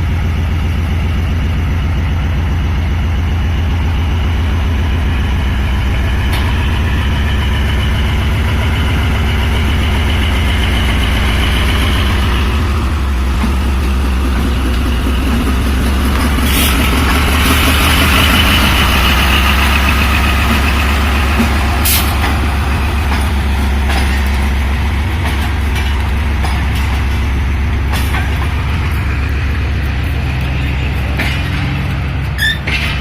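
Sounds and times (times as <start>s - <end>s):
diesel locomotive engine rumbling: 0.0s - 33.0s.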